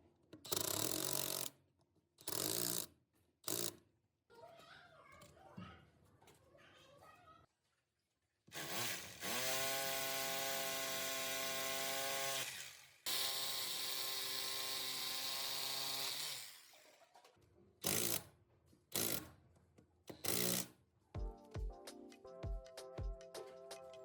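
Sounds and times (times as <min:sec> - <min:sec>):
hammer drill motor whining: 0:08.5 - 0:17.0.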